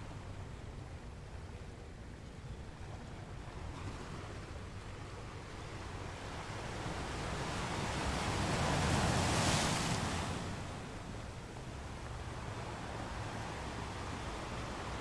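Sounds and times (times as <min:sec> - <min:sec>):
ocean wave breaking on beach: 0:07.3 - 0:11.0.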